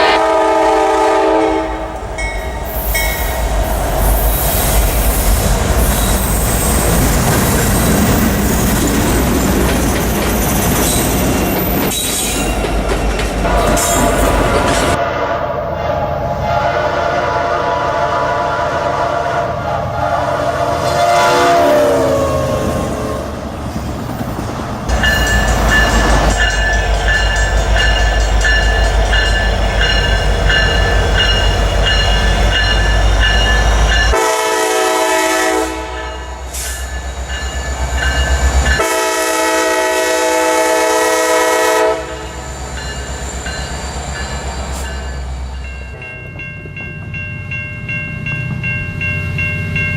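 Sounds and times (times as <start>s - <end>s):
locomotive air horn blasts: 0.0s - 2.0s, 15.0s - 22.1s, 34.1s - 36.8s, 38.8s - 42.4s
train rumbling: 0.0s - 49.9s.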